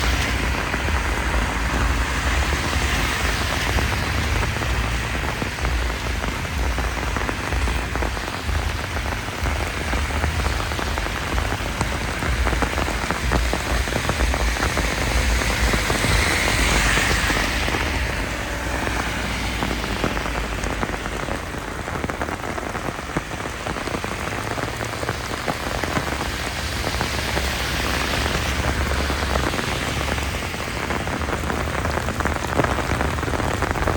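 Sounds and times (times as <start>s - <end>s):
heavy rain: 0.0s - 33.9s
low rumble: 30.5s - 33.9s.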